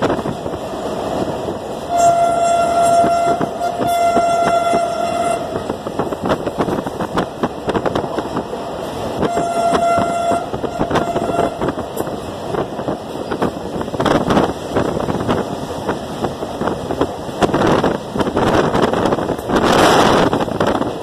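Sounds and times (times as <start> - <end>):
train wheels clacking over rail joints: 0.0 - 21.0
locomotive horn blasts: 1.9 - 5.9, 9.2 - 11.8.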